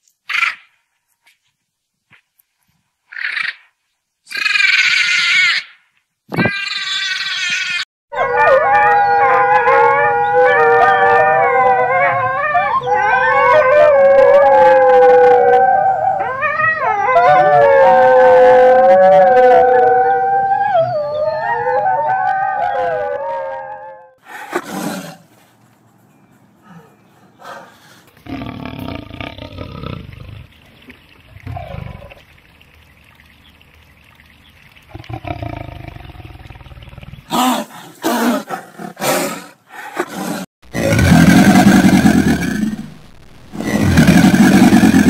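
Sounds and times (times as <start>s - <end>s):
wolves howling: 8.1s - 24.2s.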